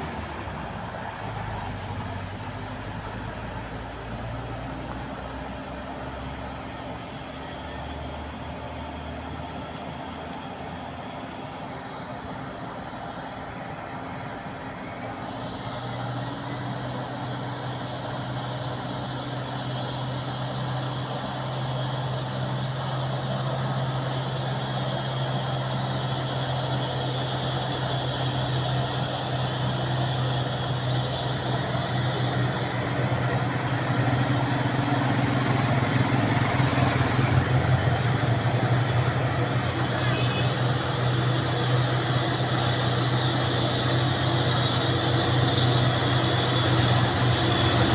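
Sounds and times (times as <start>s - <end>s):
truck engine running: 0.0s - 47.9s.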